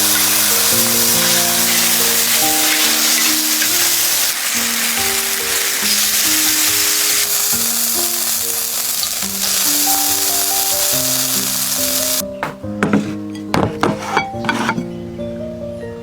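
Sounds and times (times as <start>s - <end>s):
food sizzling in a pan: 0.0s - 12.2s
slow background music: 0.0s - 16.0s.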